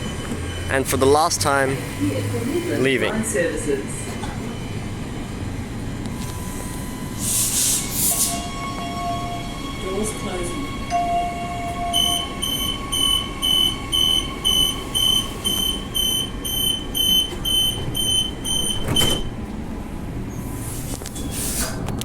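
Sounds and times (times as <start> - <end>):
electric train hum: 0.0 - 22.0
door-closing warning beeps: 10.9 - 19.4
sliding doors shutting thud: 17.4 - 19.4.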